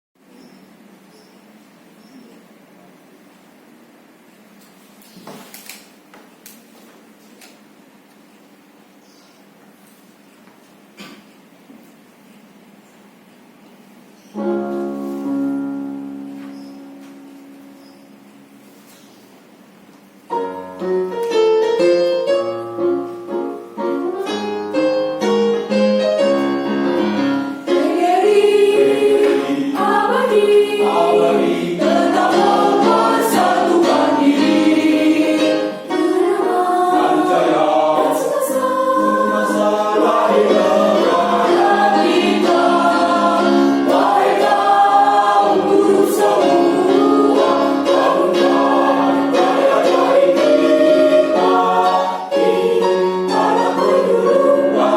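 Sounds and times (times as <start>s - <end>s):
choir singing: 27.5s - 54.9s.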